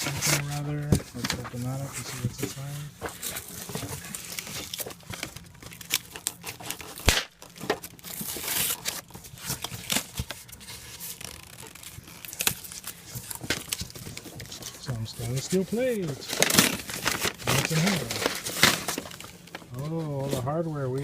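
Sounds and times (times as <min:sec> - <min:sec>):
packaging tearing and crinkling: 0:00.0 - 0:20.2.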